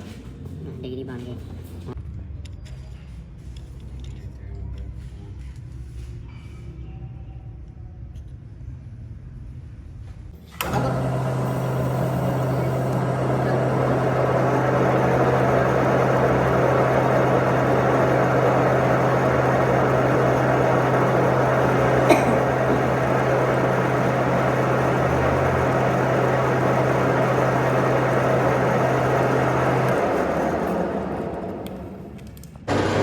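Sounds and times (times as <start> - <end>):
mechanical running hum: 10.4 - 33.0.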